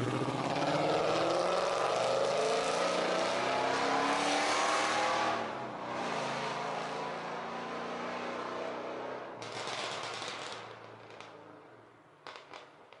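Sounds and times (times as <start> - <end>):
car engine running: 0.0 - 1.3.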